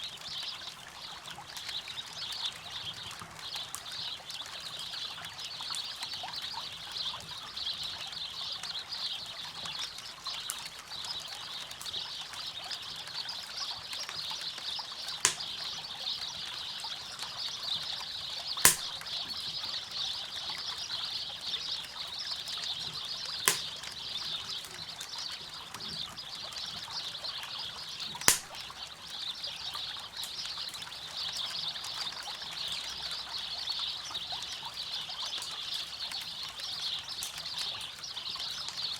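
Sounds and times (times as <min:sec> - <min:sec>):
campfire popping: 0:18.7 - 0:19.0, 0:23.5 - 0:23.7, 0:28.3 - 0:28.6.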